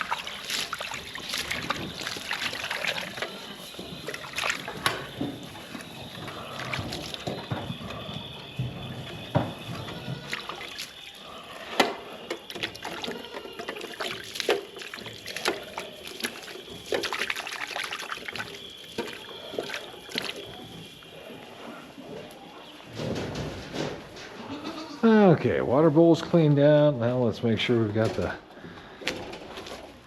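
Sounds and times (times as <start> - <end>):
water sloshing and pouring: 0.0 - 21.5.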